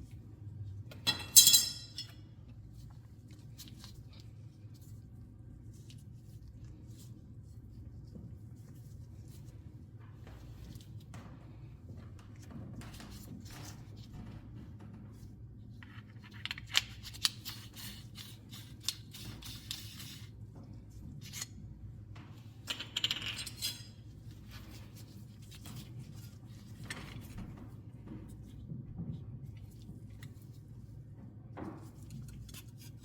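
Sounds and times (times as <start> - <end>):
low steady hum: 0.0 - 33.0
small metal parts clinking: 1.0 - 2.2.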